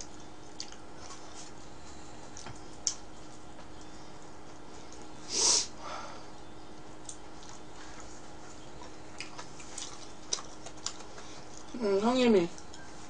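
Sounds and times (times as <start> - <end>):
person chewing food: 0.0 - 5.2, 6.7 - 11.8
hiss of breath: 5.3 - 5.8.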